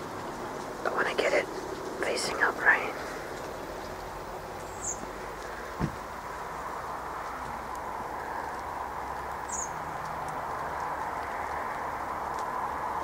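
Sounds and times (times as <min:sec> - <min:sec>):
outdoor background hiss: 0:00.0 - 0:13.0
dull thump: 0:05.8 - 0:06.1.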